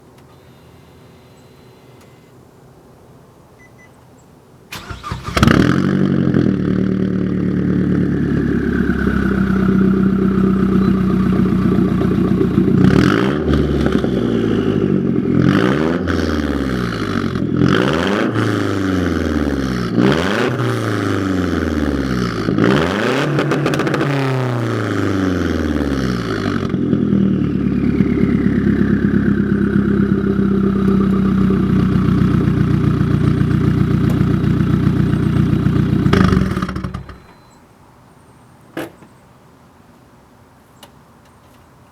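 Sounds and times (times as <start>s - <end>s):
car engine revving: 4.7s - 37.2s.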